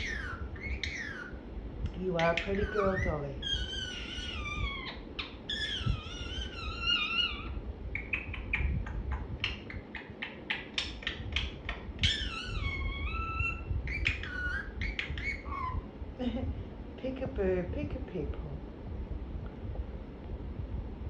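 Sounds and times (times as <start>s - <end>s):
parrot chattering: 0.0s - 1.4s, 2.0s - 15.9s
parrot clicks and chirps: 8.0s - 15.7s.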